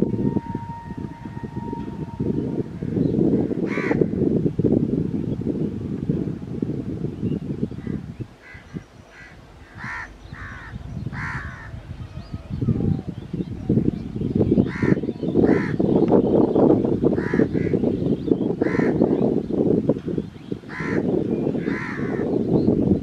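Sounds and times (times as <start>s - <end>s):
crows cawing: 3.7s - 4.0s, 8.4s - 11.7s, 20.7s - 21.0s, 21.6s - 22.2s.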